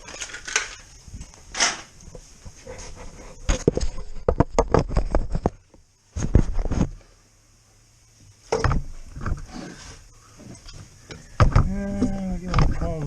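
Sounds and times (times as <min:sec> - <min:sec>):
tools and parts clicking: 0:00.0 - 0:00.9.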